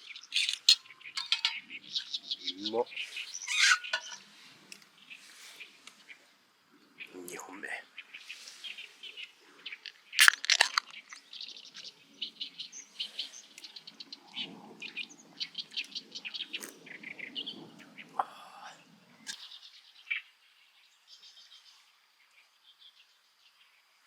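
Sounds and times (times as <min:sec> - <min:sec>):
small birds chirping: 0:00.0 - 0:24.0
sharp clicks and knocks: 0:00.4 - 0:01.6.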